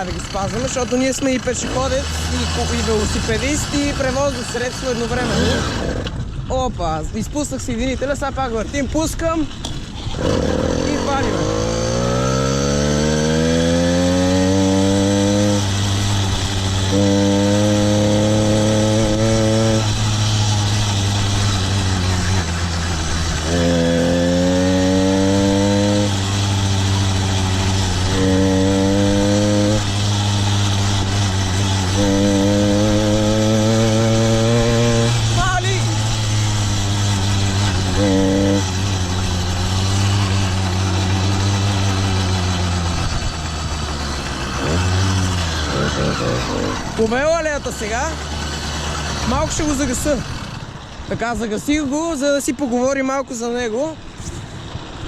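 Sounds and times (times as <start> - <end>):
small two-stroke engine revving: 0.0 - 6.5, 8.6 - 52.2.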